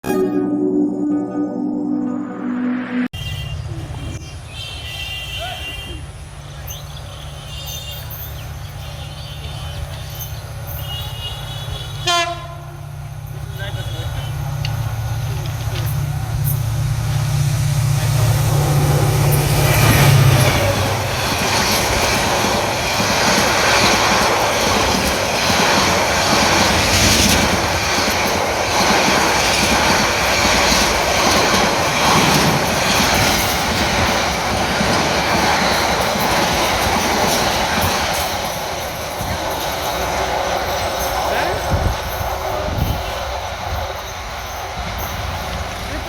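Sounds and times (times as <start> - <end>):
locomotive engine drone: 12.4 - 46.0
train wheels clattering over rails: 13.0 - 46.0.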